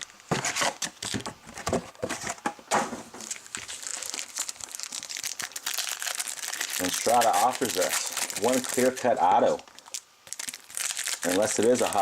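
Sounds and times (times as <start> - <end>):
plastic wrapping crinkling and tearing: 0.0 - 1.3, 3.2 - 12.0.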